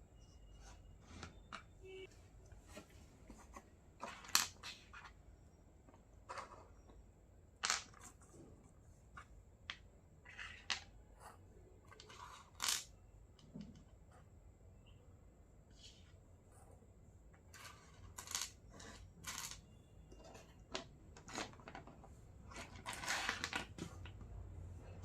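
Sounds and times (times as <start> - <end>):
plastic toy pieces clicking: 12.0 - 12.9.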